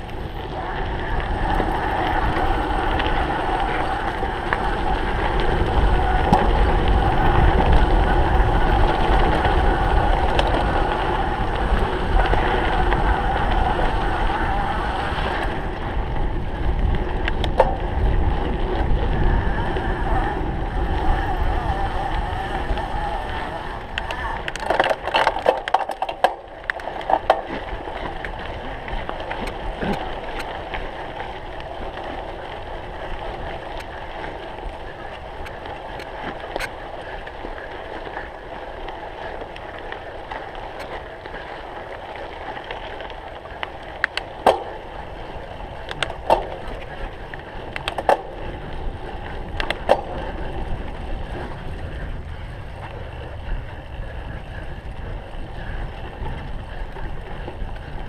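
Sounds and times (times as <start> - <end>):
bike tyres rolling over bumpy ground: 0.0 - 58.0
bike knocks and rattles: 16.8 - 18.8, 24.1 - 28.4, 44.1 - 44.9, 45.9 - 46.9.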